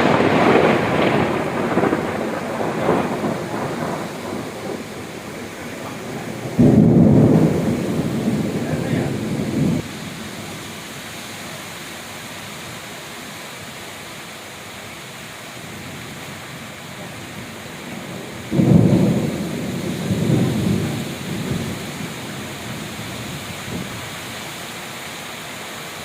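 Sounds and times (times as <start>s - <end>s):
thunder rumbling: 0.0s - 10.8s, 15.6s - 24.3s
heavy rain hissing: 0.0s - 26.0s.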